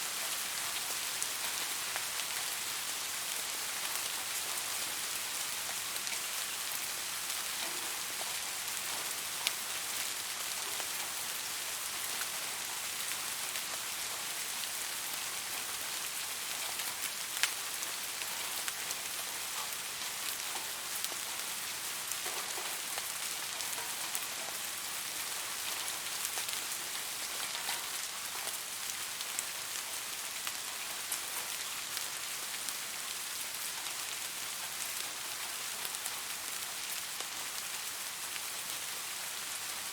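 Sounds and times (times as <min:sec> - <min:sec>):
steady rain on a surface: 0:00.0 - 0:39.9
raindrop ticks: 0:25.7 - 0:28.6.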